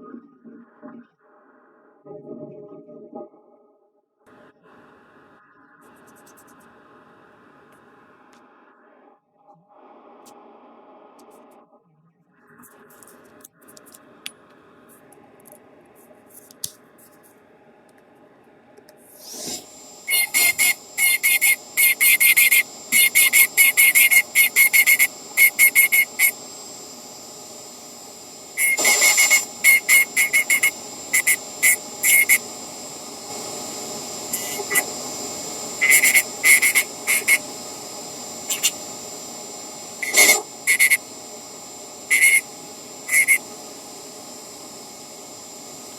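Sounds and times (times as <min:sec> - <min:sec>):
bursts of hissing whine: 0:19.1 - 0:45.9
rotary tool whining: 0:19.1 - 0:45.9.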